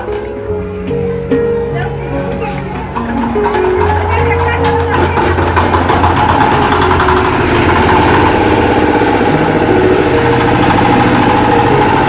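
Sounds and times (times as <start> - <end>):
small diesel engine running: 3.2 - 12.0.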